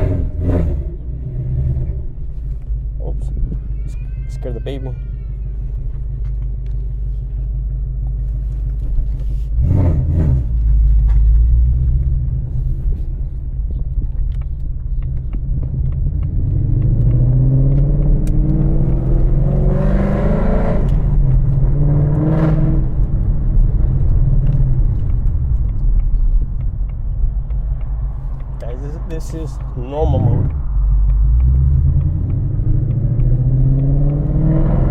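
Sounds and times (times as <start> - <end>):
loud car exhaust revving: 0.0 - 2.2, 9.6 - 12.4, 15.7 - 25.1, 30.0 - 34.9
car pulling away: 0.0 - 34.9.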